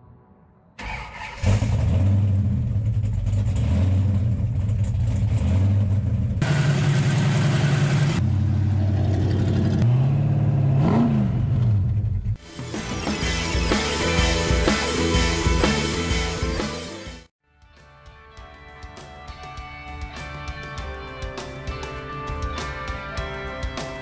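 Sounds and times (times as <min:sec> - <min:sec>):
engine revving: 0:00.8 - 0:12.4
car engine starting and idling: 0:00.8 - 0:15.2.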